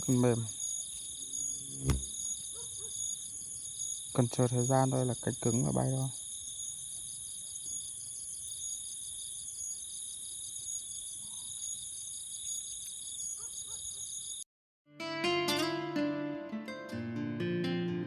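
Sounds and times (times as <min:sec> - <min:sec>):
night insects chirping: 0:00.0 - 0:14.4
plucked acoustic guitar music: 0:01.7 - 0:02.1, 0:14.9 - 0:18.0.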